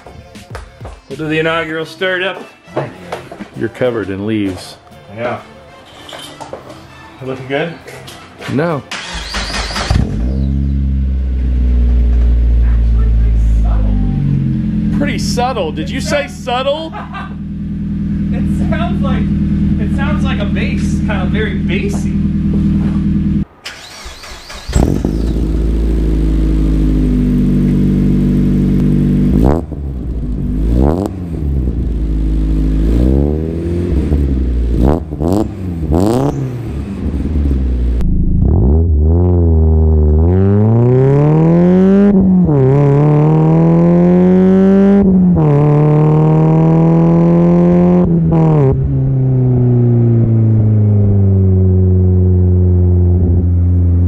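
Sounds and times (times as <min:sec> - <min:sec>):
car engine revving: 0:08.9 - 0:54.0
car engine idling: 0:09.1 - 0:40.8, 0:48.1 - 0:54.0.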